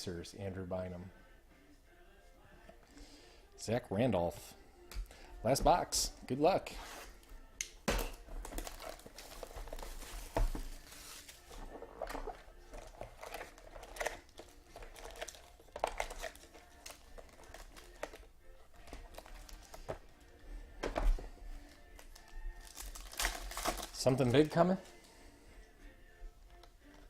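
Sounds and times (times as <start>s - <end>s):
plastic wrapping crinkling and tearing: 8.1s - 18.2s, 18.8s - 19.9s, 21.8s - 24.7s.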